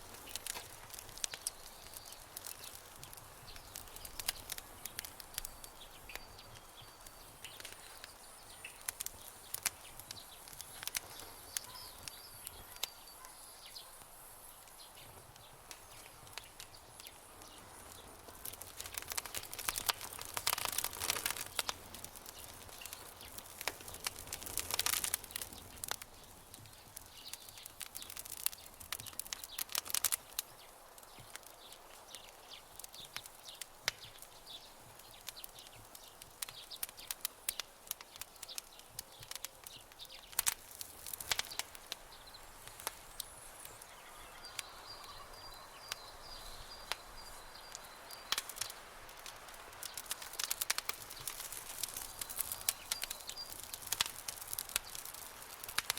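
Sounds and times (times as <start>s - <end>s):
campfire crackling: 0.0s - 55.9s.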